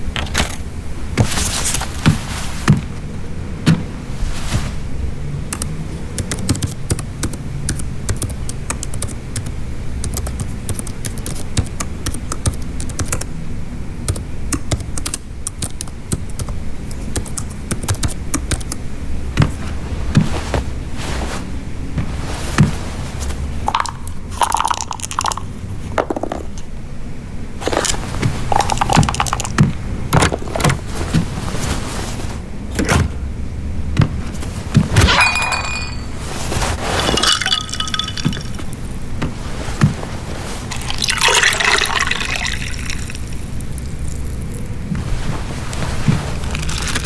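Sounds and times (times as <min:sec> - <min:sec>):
tableware clinking: 0:35.0 - 0:36.3, 0:37.0 - 0:38.7
pouring hiss: 0:40.7 - 0:44.2.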